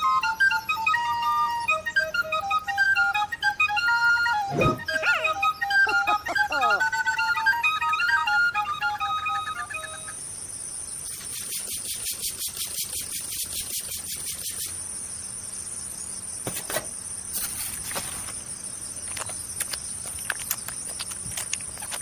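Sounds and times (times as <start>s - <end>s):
insects trilling: 0.0s - 22.0s
sharp clicks: 19.0s - 22.0s.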